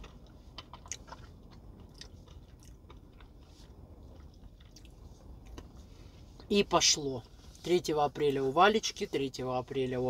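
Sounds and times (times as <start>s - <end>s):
person chewing and biting: 0.0s - 5.9s.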